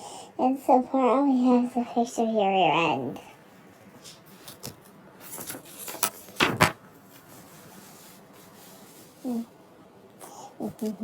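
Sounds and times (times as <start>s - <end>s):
rubbing and scraping handling noises: 3.6s - 9.4s.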